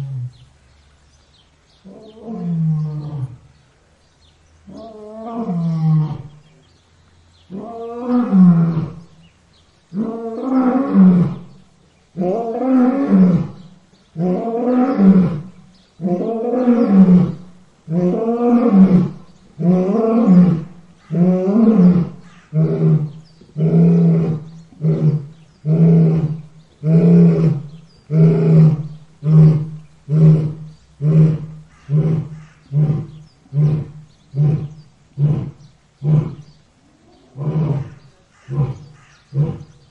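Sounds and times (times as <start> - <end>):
lion roaring: 12.2 - 39.8.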